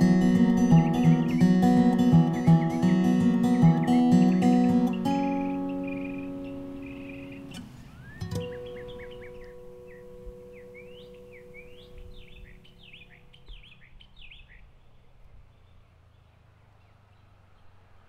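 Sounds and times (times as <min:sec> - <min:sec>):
background music chord: 0:00.0 - 0:13.1
birds chirping: 0:00.0 - 0:18.0.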